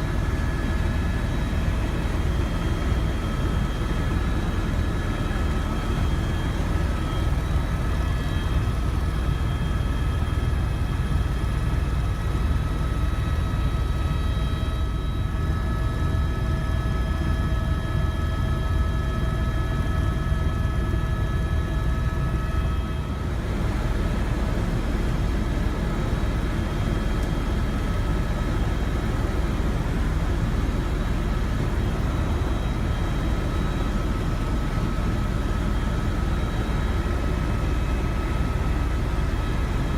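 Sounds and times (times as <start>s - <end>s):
helicopter rumble: 0.0s - 39.9s.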